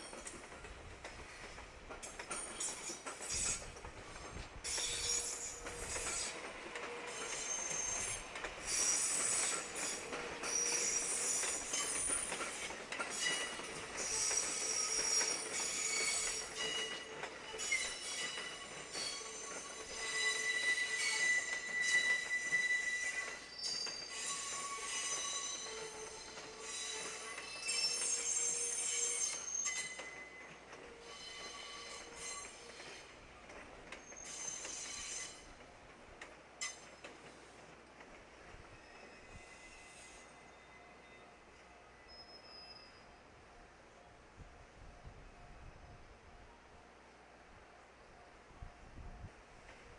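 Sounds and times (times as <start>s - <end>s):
metallic clicks from rails: 0.0s - 4.0s
train wheels squealing: 0.0s - 35.6s, 36.6s - 37.6s, 38.4s - 43.2s
train rolling rumble: 0.0s - 49.9s.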